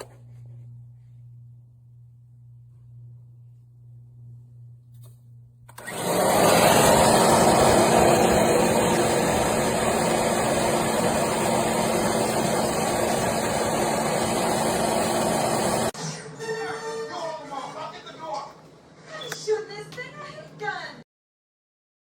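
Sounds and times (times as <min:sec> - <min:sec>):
electric motor running: 0:05.8 - 0:16.0.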